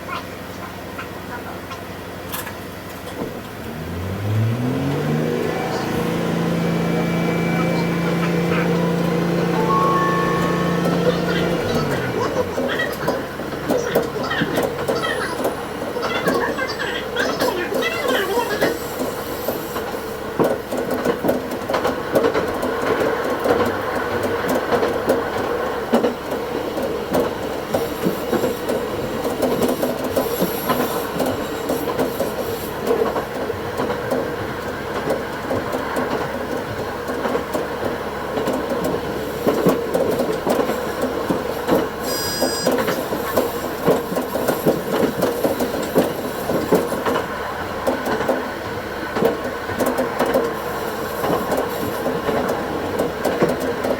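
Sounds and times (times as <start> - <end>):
diesel railcar engine and rolling: 0.0 - 53.9
wheels clicking over track: 0.2 - 53.9
high wheel squeal: 4.8 - 19.9, 27.7 - 32.9, 39.1 - 47.1.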